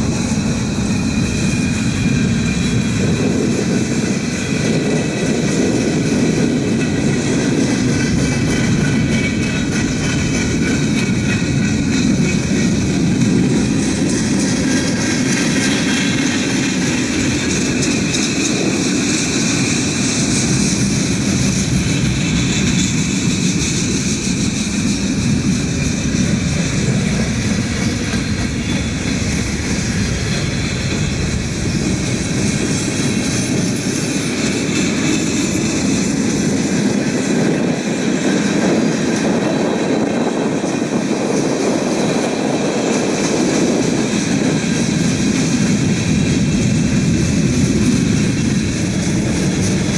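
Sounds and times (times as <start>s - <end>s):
freight train wheels rumbling: 0.0s - 49.9s.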